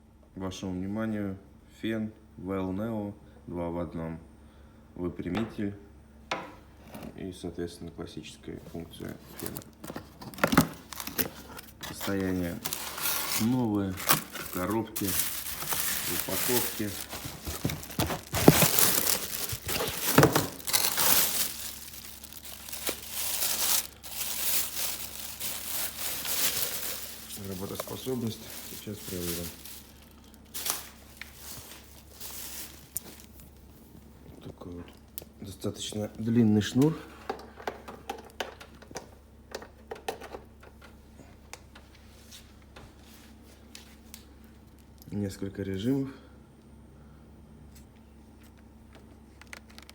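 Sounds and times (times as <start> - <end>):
faint low hum: 0.0 - 37.5
packaging crinkling and rustling: 8.9 - 34.1, 49.3 - 49.9
plastic clicks and knocks: 37.3 - 40.8.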